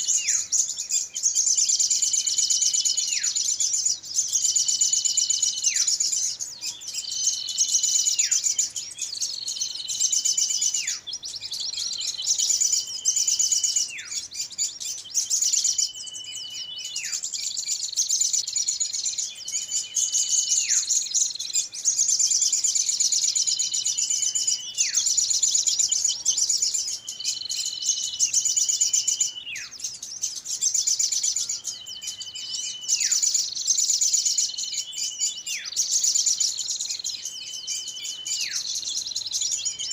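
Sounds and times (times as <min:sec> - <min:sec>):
small birds chattering: 0:00.0 - 0:39.9.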